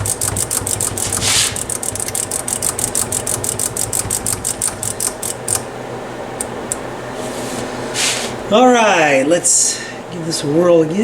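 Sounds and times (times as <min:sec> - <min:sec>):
rotary switch clicking: 0:00.0 - 0:05.7, 0:06.4 - 0:06.8
spray can hissing: 0:01.1 - 0:01.7.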